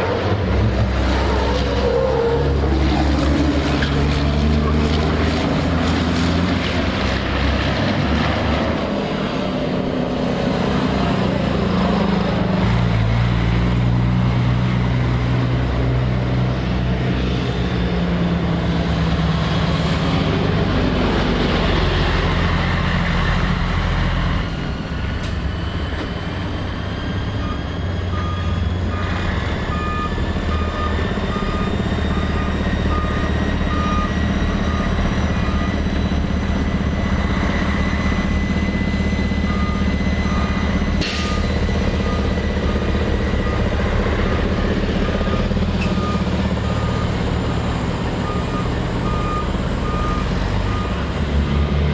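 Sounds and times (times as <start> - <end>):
truck diesel engines: 0.0 - 51.9
repeated beeping: 27.4 - 51.1.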